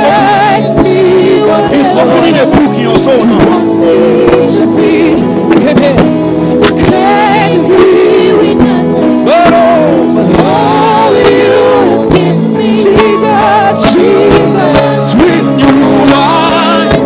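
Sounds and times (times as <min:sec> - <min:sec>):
person singing: 0:00.0 - 0:06.0, 0:06.8 - 0:17.0
keyboard chords: 0:00.0 - 0:17.0
drum hits: 0:05.4 - 0:07.1.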